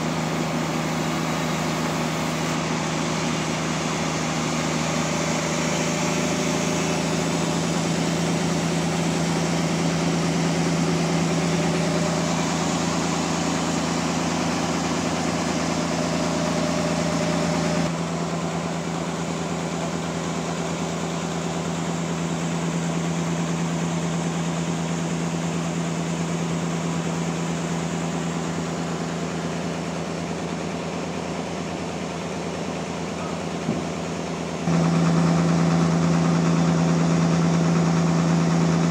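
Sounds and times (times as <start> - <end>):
low engine hum: 0.0 - 18.8, 32.9 - 38.9
sawmill machinery whirring: 0.0 - 38.9.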